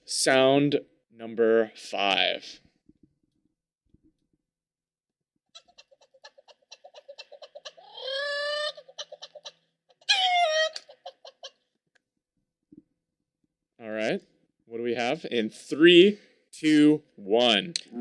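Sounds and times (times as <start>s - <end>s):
drawn-out animal cries: 6.7s - 10.8s.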